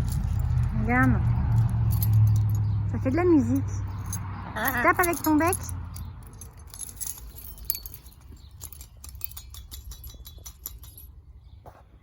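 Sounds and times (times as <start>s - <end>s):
toy clicking and jingling: 0.0s - 11.2s
thin high ringing: 3.4s - 11.3s.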